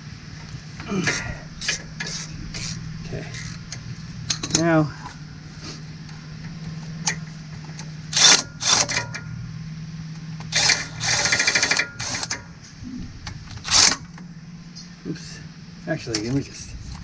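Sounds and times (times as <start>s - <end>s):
steady low hum: 0.0s - 17.0s
ratchet clicking: 6.0s - 9.4s, 10.4s - 12.5s, 13.5s - 14.2s.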